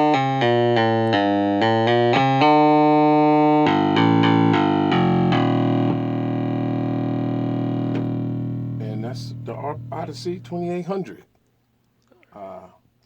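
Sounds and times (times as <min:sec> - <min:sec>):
buzzy synthesizer bass line: 0:03.6 - 0:10.9.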